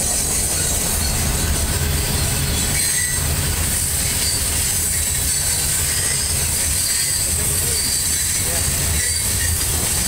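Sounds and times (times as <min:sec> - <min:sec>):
high-pitched wheel squeal: 0:02.4 - 0:09.7.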